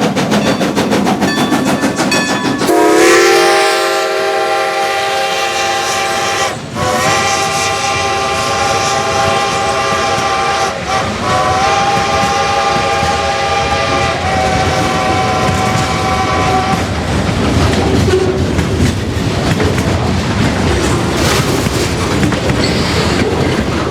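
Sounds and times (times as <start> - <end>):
freight train rumble: 0.0 - 23.9
steam locomotive exhaust: 0.0 - 23.9
steam whistle blasts: 2.0 - 16.9.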